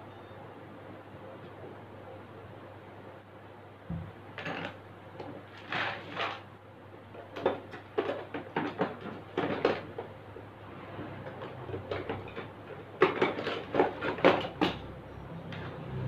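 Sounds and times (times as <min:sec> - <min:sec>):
knocks and clacks of parts: 0:07.2 - 0:10.2, 0:11.0 - 0:15.8.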